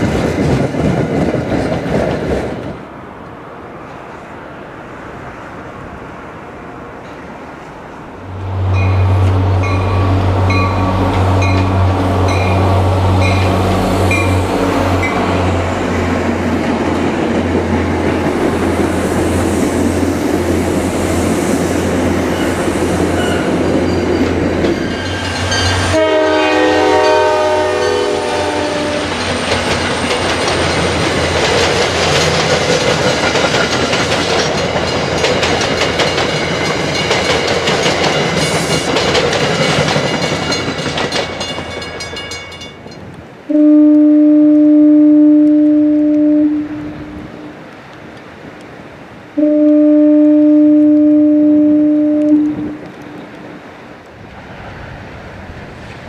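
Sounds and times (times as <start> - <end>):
train wheels rolling: 0.0 - 4.4, 6.8 - 43.3
diesel train engine drone: 0.0 - 42.4, 43.0 - 56.0
train air horn chord: 25.8 - 29.1, 43.5 - 47.5, 49.4 - 52.9.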